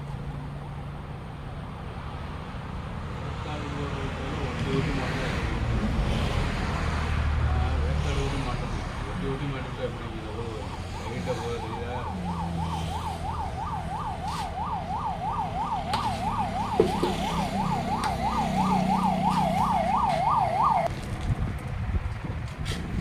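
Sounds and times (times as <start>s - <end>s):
electronic siren warbling: 10.3s - 20.9s.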